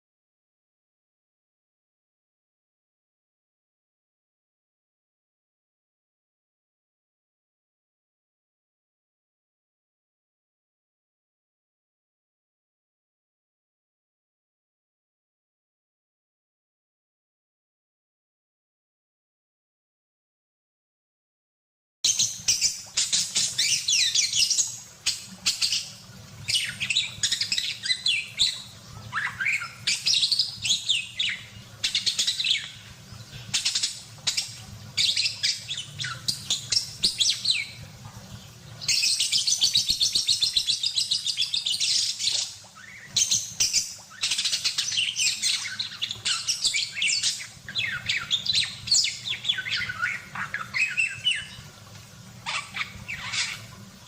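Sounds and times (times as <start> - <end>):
budgerigar chattering: 26.5 - 32.6.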